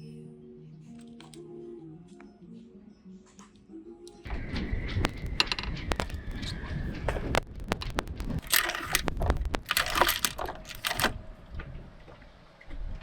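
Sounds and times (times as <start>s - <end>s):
handling clicks and knocks: 5.0s - 6.5s, 7.2s - 11.2s.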